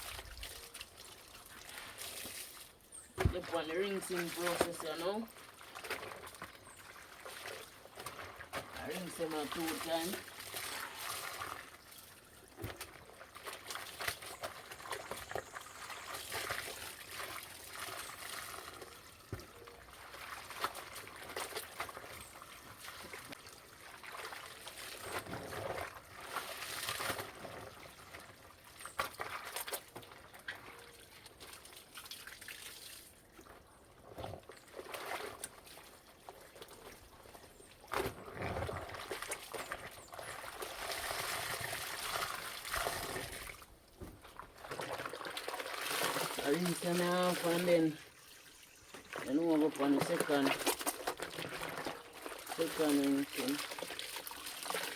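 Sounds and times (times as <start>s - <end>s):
clothes splashing in water: 0.1s - 30.5s, 44.2s - 48.0s, 49.0s - 54.9s.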